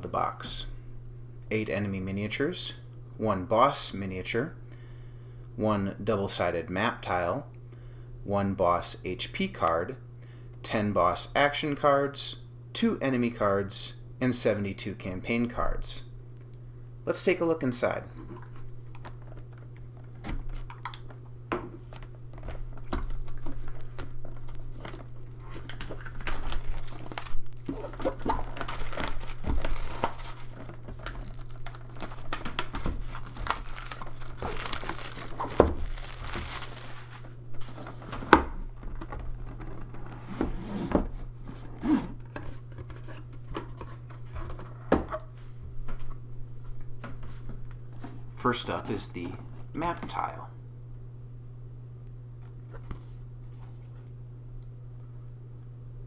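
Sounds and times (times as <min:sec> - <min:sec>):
steady low hum: 0:00.0 - 0:56.0
plastic packaging crinkling: 0:21.8 - 0:40.0
cardboard and components knocking: 0:25.6 - 0:40.0.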